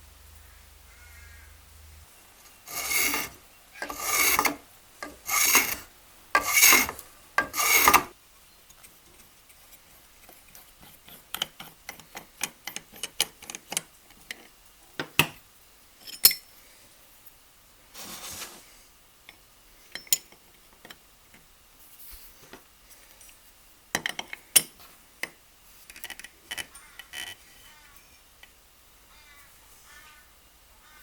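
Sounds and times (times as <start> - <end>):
block plane rasping across wood: 2.7 - 8.1.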